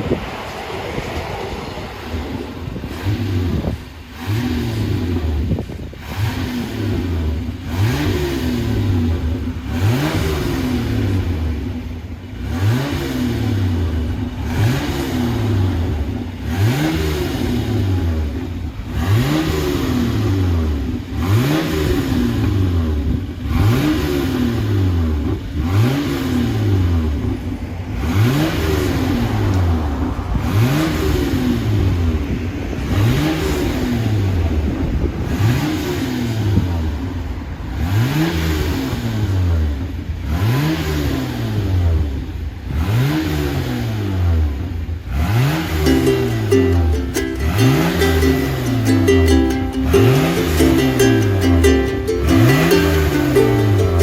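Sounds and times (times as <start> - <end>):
car engine revving: 2.8 - 27.1, 45.1 - 54.0.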